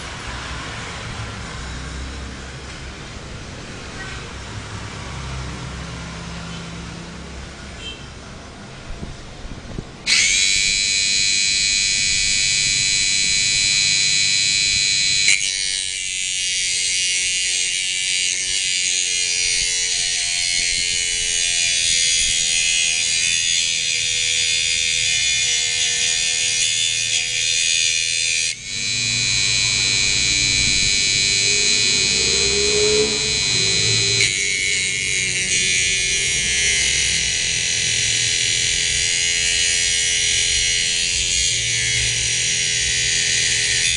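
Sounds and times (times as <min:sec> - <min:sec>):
mini grinder motor whining: 0:10.1 - 0:43.9.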